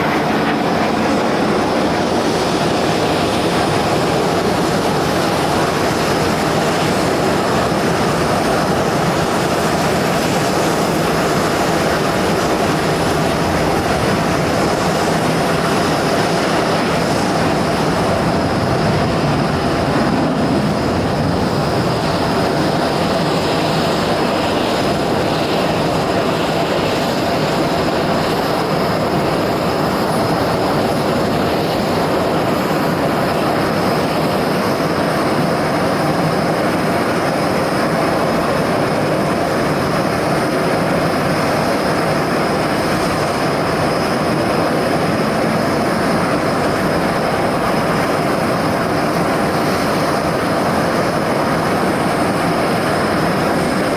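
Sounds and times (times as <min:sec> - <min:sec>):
jet engines roaring with whine: 0:00.0 - 0:53.9.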